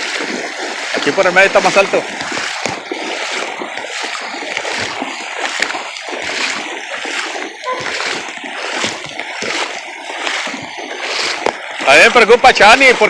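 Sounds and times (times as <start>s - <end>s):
feet wading through water: 0.0s - 13.0s.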